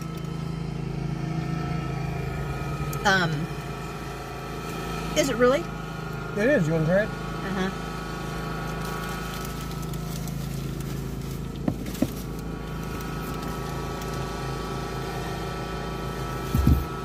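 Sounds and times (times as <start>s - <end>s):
car engine idling: 0.0s - 17.0s
low thump: 16.5s - 17.0s.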